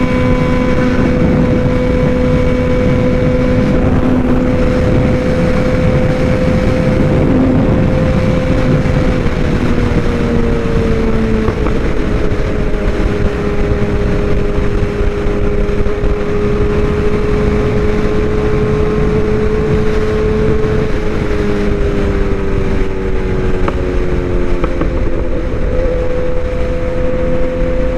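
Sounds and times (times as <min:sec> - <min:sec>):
motorcycle engine cruising: 0:00.0 - 0:27.9
wind on microphone: 0:00.0 - 0:27.9.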